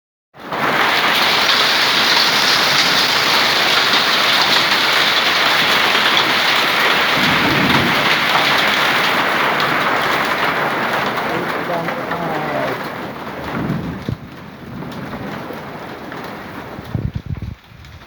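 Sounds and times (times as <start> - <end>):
hail and rain pelting: 0.4 - 18.0
low rumble: 7.1 - 9.2, 11.2 - 17.6.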